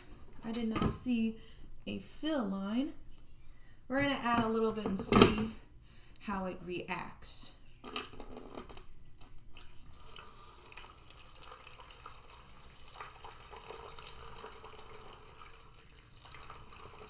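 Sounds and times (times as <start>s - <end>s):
water pouring into humidifier: 8.1s - 17.0s.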